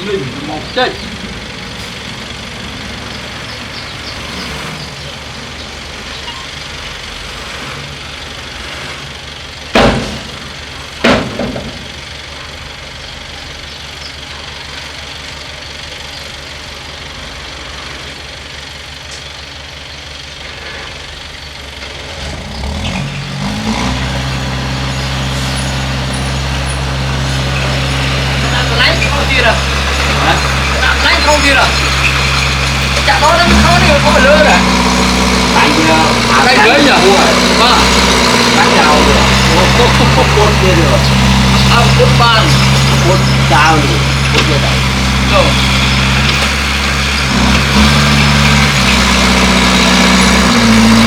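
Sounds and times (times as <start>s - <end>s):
bulldozer diesel engine running: 0.0s - 51.0s
sharp knocks: 9.7s - 10.4s, 11.0s - 11.9s.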